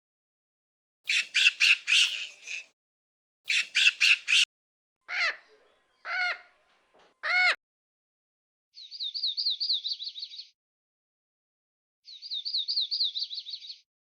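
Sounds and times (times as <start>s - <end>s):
bird squawking harsh calls: 1.1s - 2.7s, 3.5s - 4.5s, 5.1s - 6.6s, 7.2s - 7.6s.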